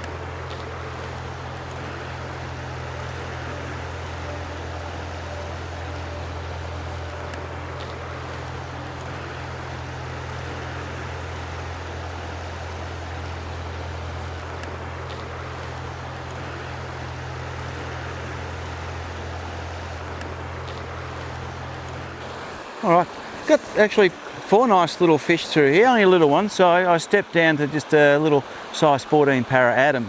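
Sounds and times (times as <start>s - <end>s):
faint ticks: 0.0s - 22.2s
mountain stream rushing: 0.0s - 30.0s.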